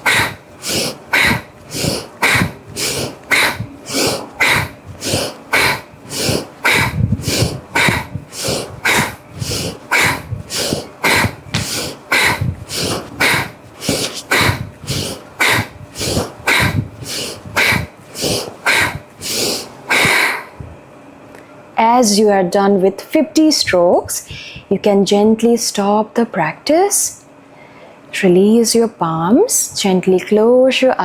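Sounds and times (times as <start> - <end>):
forceful rhythmic breathing: 0.0 - 20.8.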